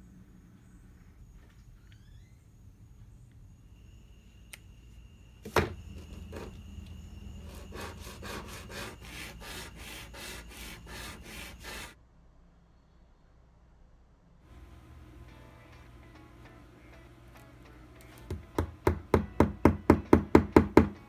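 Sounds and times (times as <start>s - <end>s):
rasping strokes: 7.3s - 12.0s.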